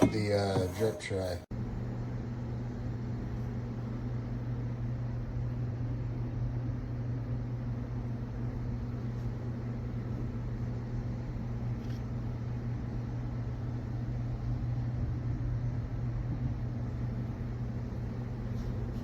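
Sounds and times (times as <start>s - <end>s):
coffee maker humming: 0.0s - 19.0s.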